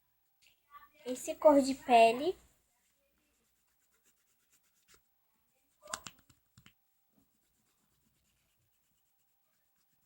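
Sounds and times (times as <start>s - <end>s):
felt-tip pen scratching paper: 2.8s - 6.4s, 7.3s - 10.0s.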